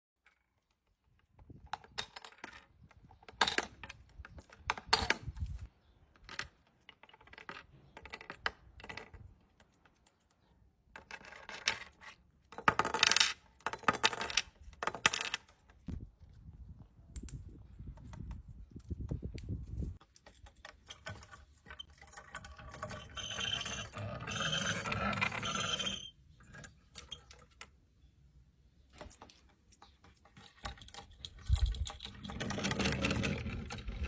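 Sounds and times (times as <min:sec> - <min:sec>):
sharp metallic clinks and rattles: 0:30.1 - 0:34.0.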